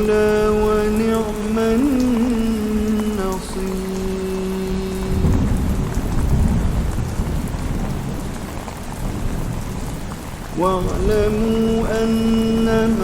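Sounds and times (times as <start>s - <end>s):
man reciting: 0.0s - 5.6s, 10.5s - 13.0s
steady rain: 0.0s - 13.0s
thunder rumbling: 0.0s - 13.0s.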